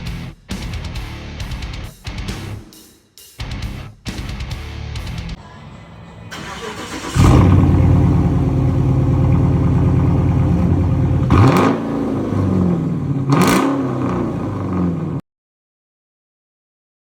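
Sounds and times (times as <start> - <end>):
car engine starting and idling: 5.3 - 15.2
engine revving: 5.4 - 15.2.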